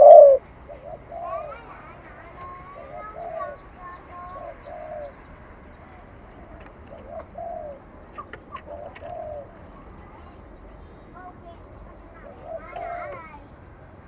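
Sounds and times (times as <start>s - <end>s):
dove cooing: 0.0s - 10.2s, 12.1s - 13.4s.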